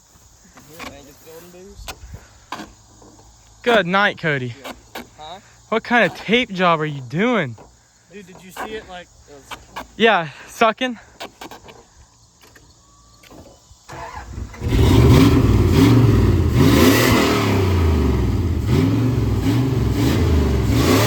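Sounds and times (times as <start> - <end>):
pickup engine revving: 13.9 - 21.0.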